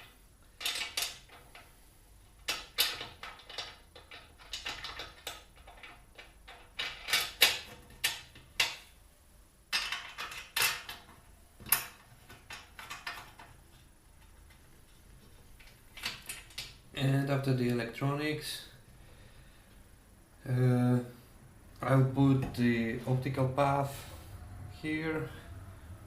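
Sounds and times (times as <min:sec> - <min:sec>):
metal parts and tools clinking: 0:00.0 - 0:01.7, 0:02.3 - 0:08.9, 0:09.7 - 0:13.6.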